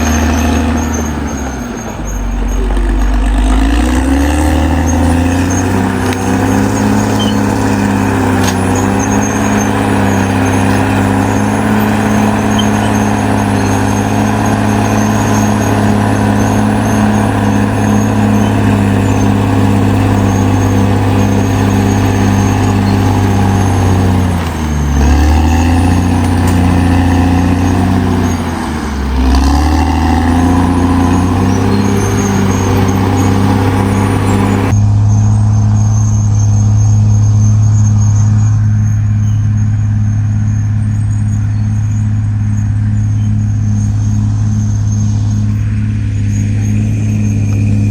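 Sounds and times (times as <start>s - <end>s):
bulldozer diesel engine running: 0.0s - 47.9s.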